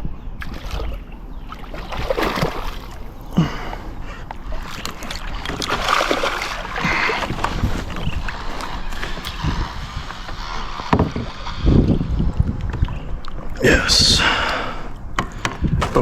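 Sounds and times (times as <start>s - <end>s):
river water splashing: 0.4s - 9.4s
sharp knocks: 15.2s - 16.0s.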